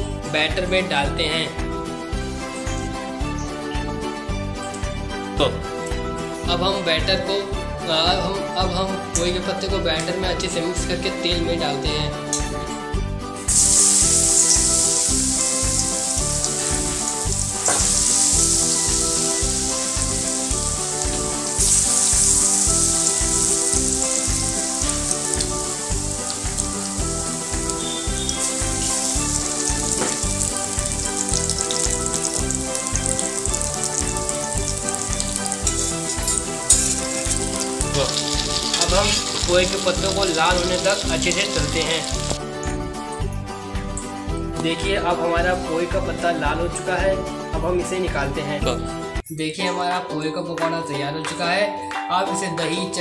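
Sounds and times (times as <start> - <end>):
background music with steady beat: 0.0 - 53.0
pakoras frying in hot oil: 13.5 - 42.4.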